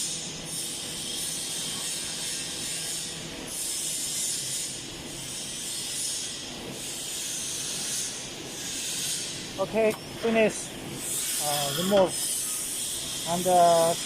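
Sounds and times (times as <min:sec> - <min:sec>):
machine humming: 0:06.6 - 0:14.0.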